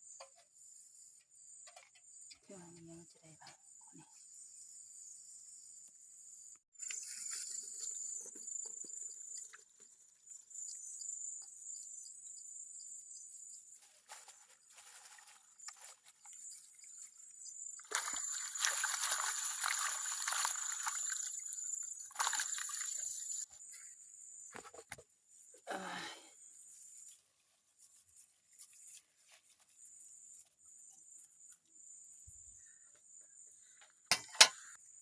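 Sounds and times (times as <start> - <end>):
water sloshing and trickling: 14.7 - 23.5.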